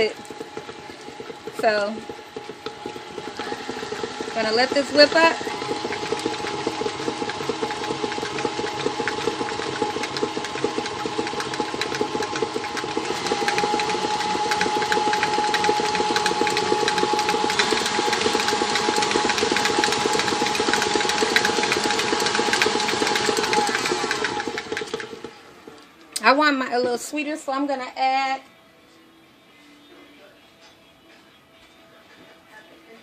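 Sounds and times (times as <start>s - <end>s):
electric mixer motor hum: 0.0s - 25.8s
whisk rattling in bowl: 0.0s - 25.8s.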